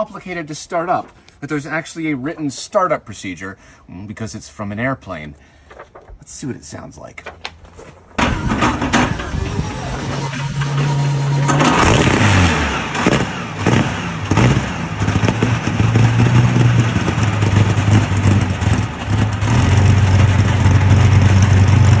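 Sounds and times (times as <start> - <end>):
aero engine running: 8.2 - 22.0.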